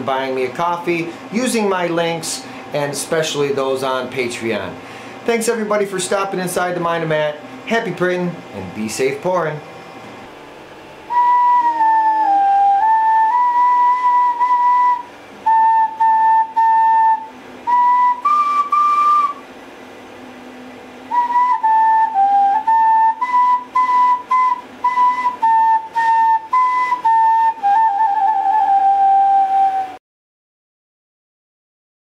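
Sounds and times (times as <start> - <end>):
flute melody: 11.1 - 19.4, 21.1 - 30.0.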